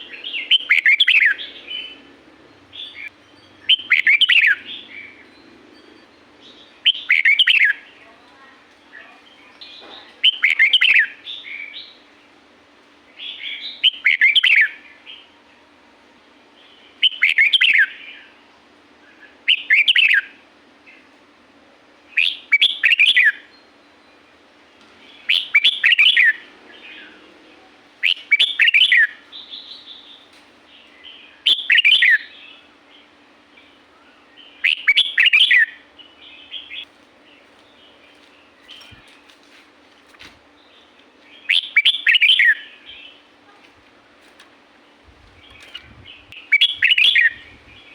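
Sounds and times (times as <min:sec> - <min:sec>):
bulbul singing warbled phrases: 0:00.0 - 0:05.4, 0:06.4 - 0:12.0, 0:25.1 - 0:30.2, 0:30.8 - 0:39.2, 0:40.7 - 0:43.8, 0:44.9 - 0:47.9.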